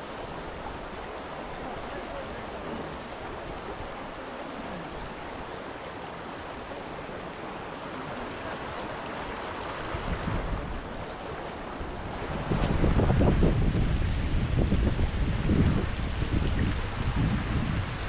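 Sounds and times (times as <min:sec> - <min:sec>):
river water rushing: 0:00.0 - 0:18.0
wind rumble on microphone: 0:07.9 - 0:18.0.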